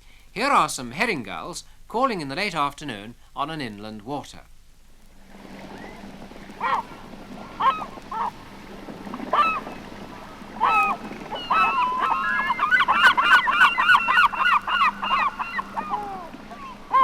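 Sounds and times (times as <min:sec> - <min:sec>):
gulls calling: 0:05.2 - 0:17.0.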